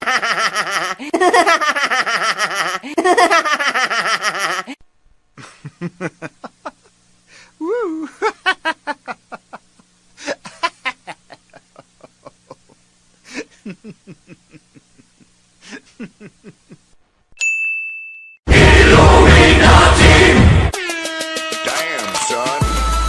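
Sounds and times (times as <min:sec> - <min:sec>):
rhythmic laughter bursts: 0:00.0 - 0:04.8, 0:05.4 - 0:07.1, 0:08.1 - 0:17.0, 0:18.5 - 0:22.0
loud music: 0:18.5 - 0:23.0.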